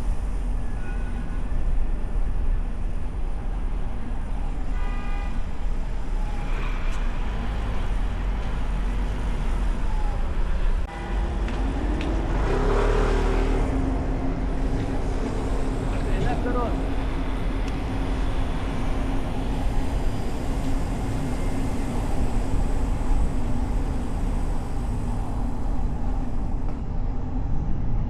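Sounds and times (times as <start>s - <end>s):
passing traffic: 0.0s - 28.0s
road and wind noise: 0.0s - 28.0s
vehicle rising tone: 6.0s - 26.8s.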